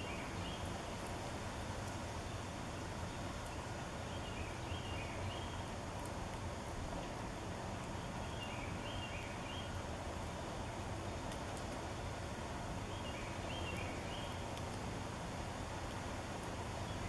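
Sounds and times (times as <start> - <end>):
songbird singing whistled notes: 0.0 - 0.8, 3.1 - 5.7, 8.2 - 9.8, 12.8 - 14.4.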